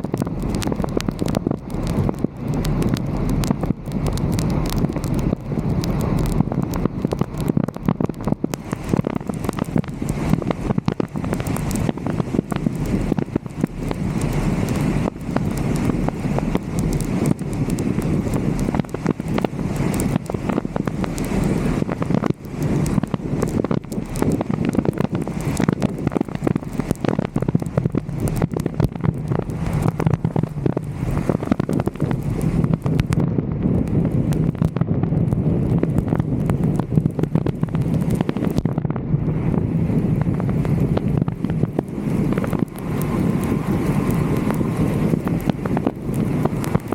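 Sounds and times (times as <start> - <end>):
low steady rumble: 0.0 - 46.9
sharp ticks and crackles: 0.0 - 46.9
wind buffeting microphone: 0.0 - 46.9.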